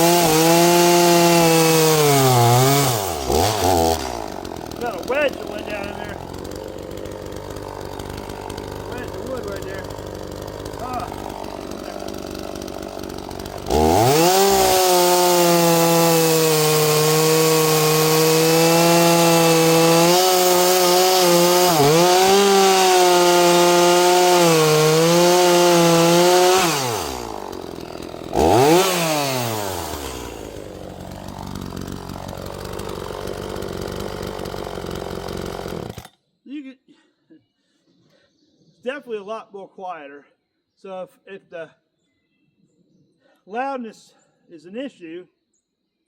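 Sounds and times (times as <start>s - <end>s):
chainsaw engine revving: 0.0s - 36.2s.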